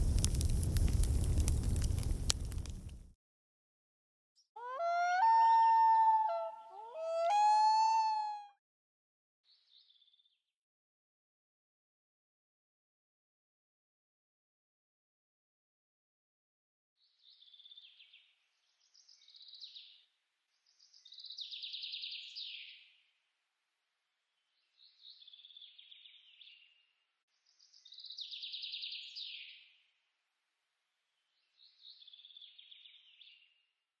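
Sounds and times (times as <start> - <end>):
bird trilling: 4.6 - 8.5.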